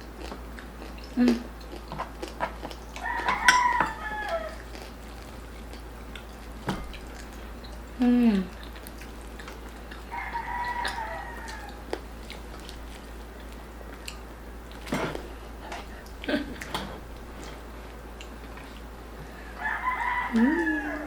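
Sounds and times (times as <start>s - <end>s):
chewing crispy pork: 0.0s - 21.0s
crackles of crispy skin: 4.0s - 19.3s.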